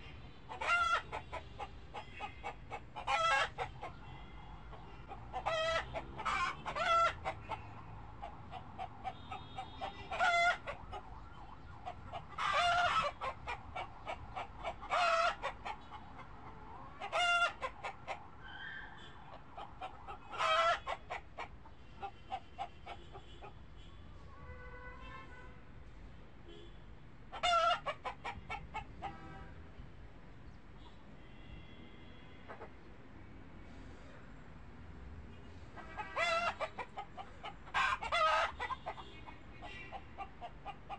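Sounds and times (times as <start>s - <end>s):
chickens clucking: 0.0s - 18.4s, 19.0s - 23.6s, 27.3s - 29.3s, 35.8s - 40.9s.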